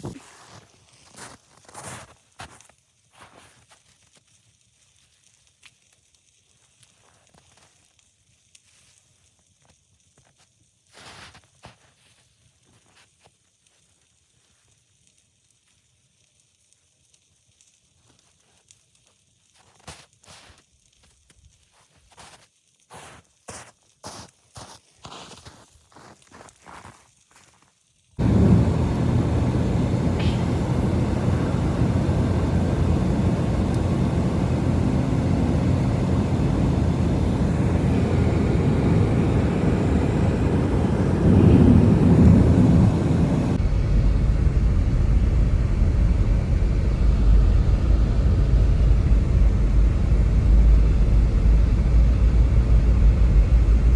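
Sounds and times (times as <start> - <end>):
strong wind on microphone: 28.2 - 53.9.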